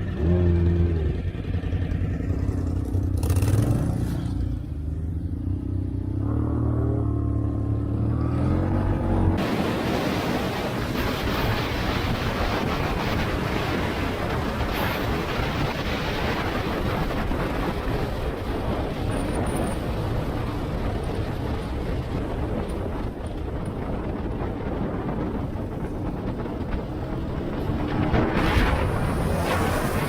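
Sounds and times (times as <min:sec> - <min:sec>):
motorcycle engine: 0:00.0 - 0:09.6
road noise: 0:00.0 - 0:30.0
wind rushing over microphone: 0:06.0 - 0:30.0.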